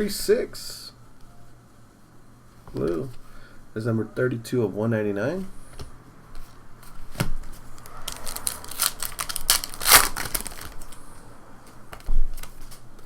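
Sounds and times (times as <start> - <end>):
cards clicking and rustling: 6.8 - 11.0, 11.9 - 13.0.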